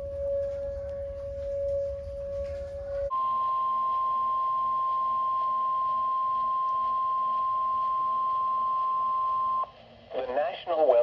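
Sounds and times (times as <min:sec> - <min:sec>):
low rumble: 0:00.0 - 0:03.1
steady low tone: 0:00.0 - 0:09.7.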